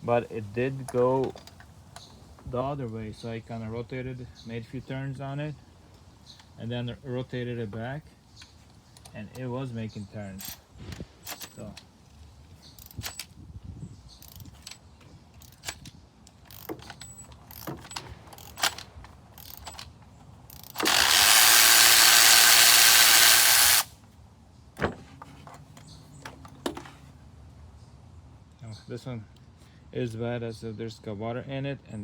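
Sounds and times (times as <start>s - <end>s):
ratchet clicking: 20.5s - 23.9s
loud steady hiss: 20.8s - 24.0s.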